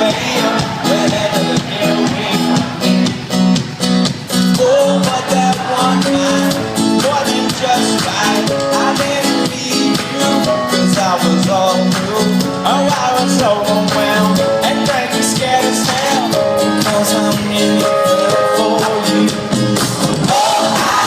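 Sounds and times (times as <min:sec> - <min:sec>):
person singing lead vocal: 0:00.0 - 0:03.3, 0:04.3 - 0:21.0
live rock band playing: 0:00.0 - 0:21.0.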